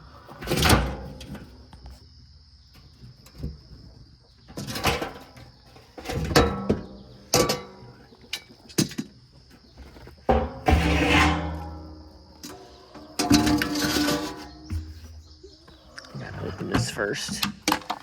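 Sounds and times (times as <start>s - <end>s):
clattering bangs of feeders: 0.2s - 1.6s, 4.4s - 9.4s, 10.1s - 18.0s.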